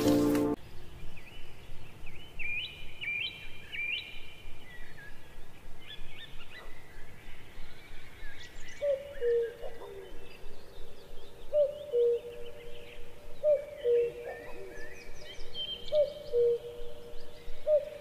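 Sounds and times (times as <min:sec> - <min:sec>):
lower whistled bird call: 0:05.8 - 0:18.0
higher bird calls: 0:08.4 - 0:18.0.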